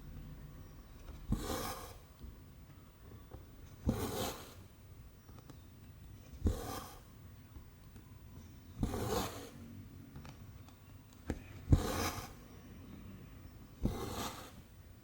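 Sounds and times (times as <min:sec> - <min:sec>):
needle stitching through canvas: 0:01.0 - 0:02.1, 0:03.6 - 0:04.7, 0:06.2 - 0:07.1, 0:08.8 - 0:09.6, 0:11.4 - 0:12.4, 0:13.8 - 0:14.7.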